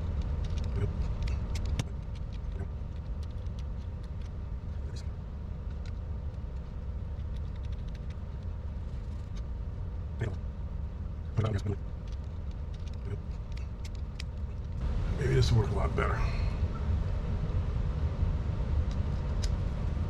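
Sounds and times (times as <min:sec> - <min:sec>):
small parts clicking and tapping: 0:00.0 - 0:05.0, 0:05.6 - 0:09.5, 0:11.4 - 0:14.8
steady low rumble: 0:00.0 - 0:20.0.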